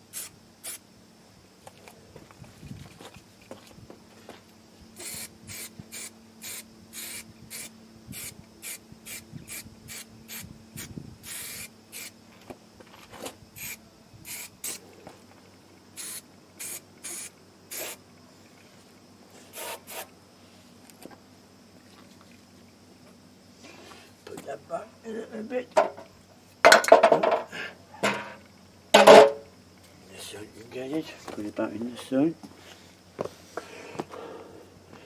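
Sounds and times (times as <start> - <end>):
aerosol spray can hissing: 0.1 - 0.8, 5.0 - 12.2, 13.6 - 14.8, 16.0 - 18.0, 19.5 - 20.1.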